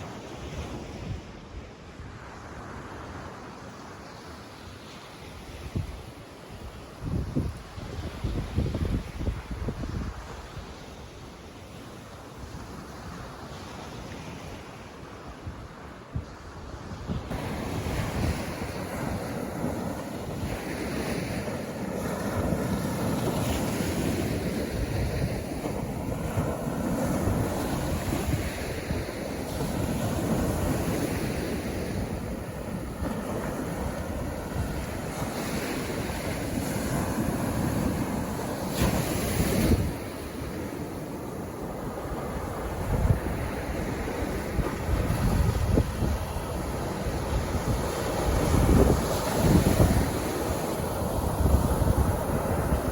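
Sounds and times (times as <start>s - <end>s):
sea waves washing on beach: 0.0s - 52.9s
wind on microphone: 5.4s - 11.4s, 15.3s - 52.9s.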